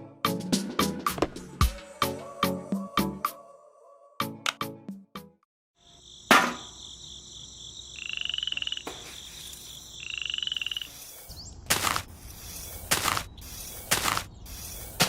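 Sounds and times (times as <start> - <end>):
frog croaking: 5.8 - 9.0, 9.7 - 11.0
high insect drone: 5.8 - 15.0.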